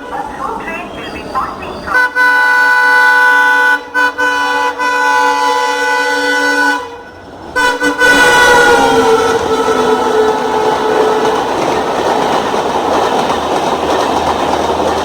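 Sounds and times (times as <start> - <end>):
train rumble: 0.0 - 15.0
locomotive air horn blasts: 1.9 - 11.5.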